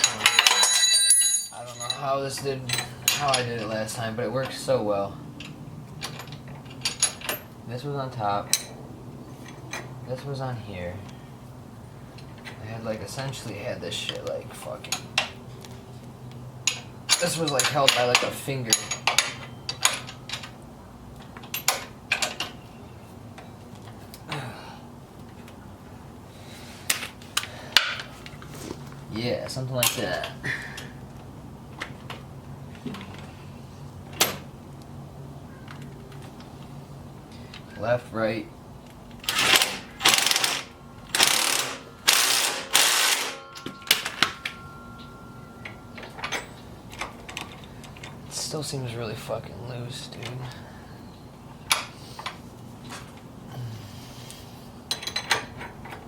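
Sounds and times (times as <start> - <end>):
low steady hum: 0.0 - 56.0
ratchet wrench clicking: 39.3 - 43.4.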